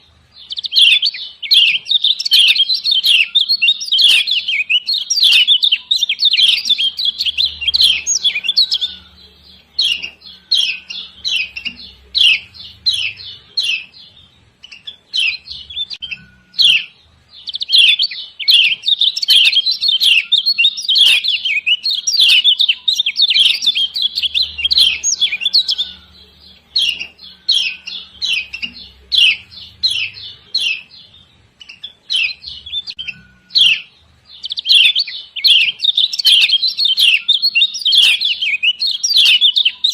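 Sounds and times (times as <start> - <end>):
bird giving scratchy chirps: 0.5 - 14.0, 14.7 - 30.9.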